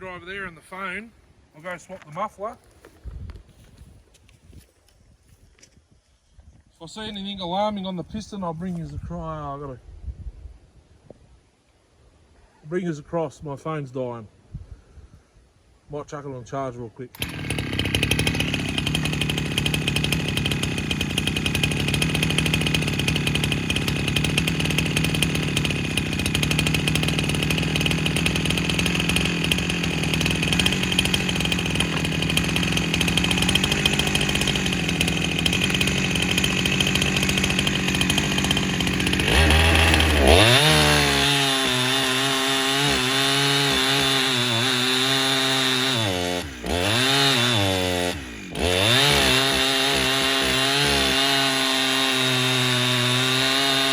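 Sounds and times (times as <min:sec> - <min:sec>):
two-stroke saw engine running: 0:17.1 - 0:53.9.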